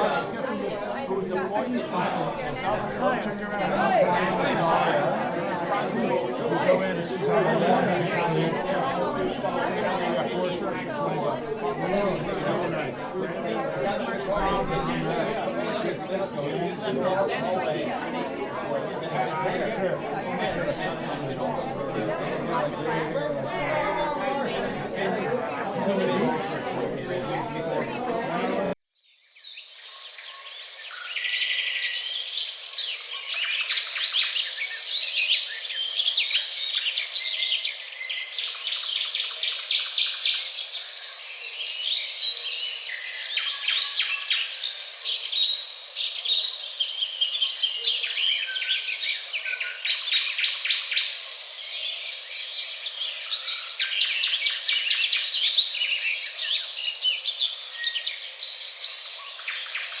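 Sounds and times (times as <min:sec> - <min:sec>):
songbirds chirping and trilling: 0:29.1 - 1:00.0.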